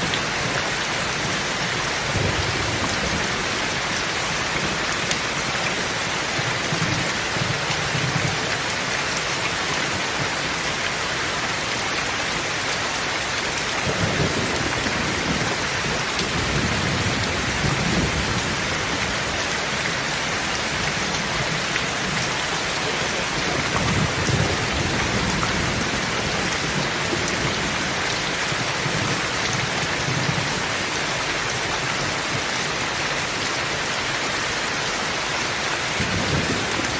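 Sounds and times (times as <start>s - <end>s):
steady rain: 0.0s - 36.9s
low thunder rumbling: 1.2s - 5.0s, 13.8s - 19.8s, 20.6s - 30.6s, 35.9s - 36.9s.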